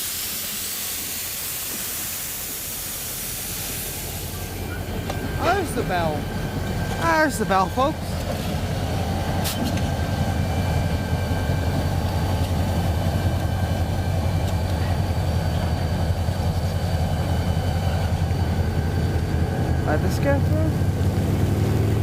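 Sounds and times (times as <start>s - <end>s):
diesel locomotive engine drone: 0.0s - 22.0s
locomotive bell ringing: 3.9s - 20.4s.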